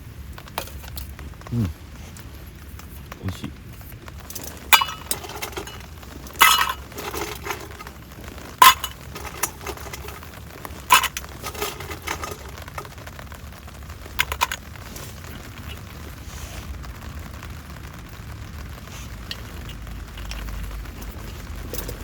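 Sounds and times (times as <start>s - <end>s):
tableware clinking: 4.7s - 7.9s, 8.6s - 10.2s, 10.9s - 12.7s.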